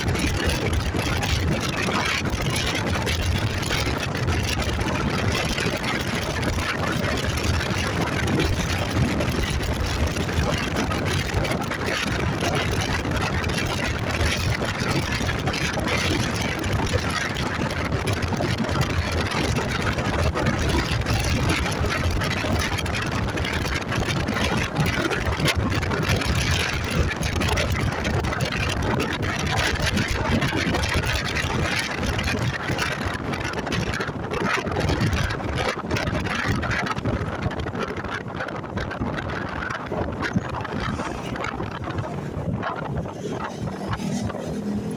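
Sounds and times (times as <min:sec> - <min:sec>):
road noise: 0:00.0 - 0:44.9
wind rush over microphone: 0:00.0 - 0:44.9
motorcycle engine: 0:38.7 - 0:44.9.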